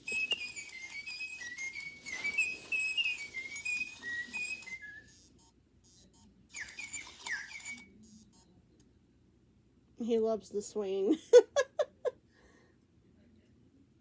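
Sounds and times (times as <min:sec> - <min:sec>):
toy parakeet whistling tune: 0:00.0 - 0:05.4, 0:06.5 - 0:08.0
toy parakeet chirps: 0:00.1 - 0:05.3, 0:06.5 - 0:07.9.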